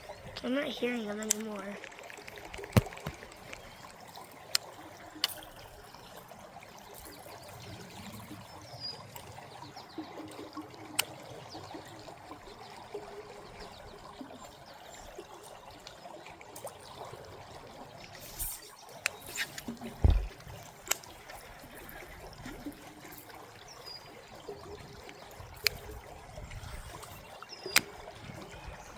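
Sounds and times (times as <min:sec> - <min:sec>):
creek water trickling: 0:00.0 - 0:28.9
sharp clicks: 0:01.1 - 0:03.7, 0:27.6 - 0:28.0.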